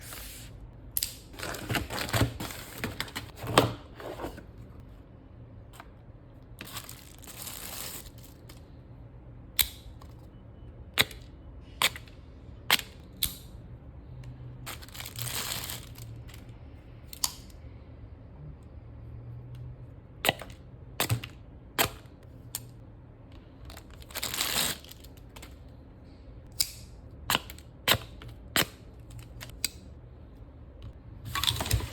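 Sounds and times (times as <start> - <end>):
packaging rustling and crinkling: 1.4 - 3.5, 6.6 - 8.5, 14.7 - 16.4, 23.8 - 25.2.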